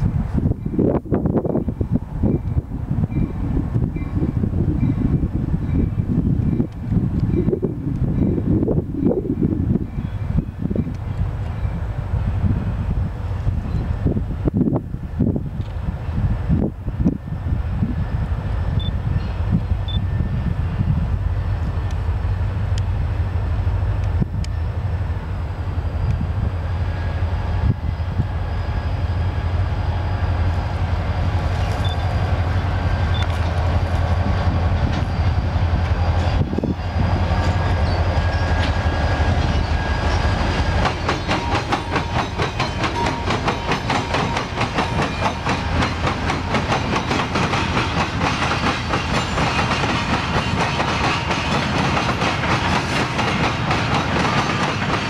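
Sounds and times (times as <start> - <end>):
diesel locomotive engine drone: 0.0 - 55.0
train wheels clickety-clack: 33.1 - 55.0.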